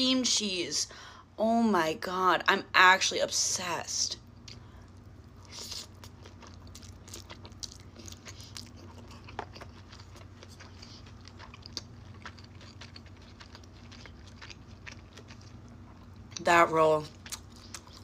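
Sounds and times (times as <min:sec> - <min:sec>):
close chewing with mouth clicks: 0:04.4 - 0:16.5, 0:17.1 - 0:18.0.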